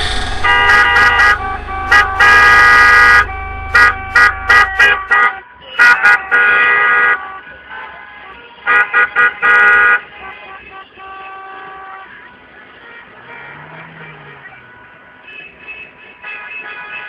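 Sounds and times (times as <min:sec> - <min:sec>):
low rumble: 0:00.0 - 0:05.1
car horn honking: 0:00.0 - 0:17.0.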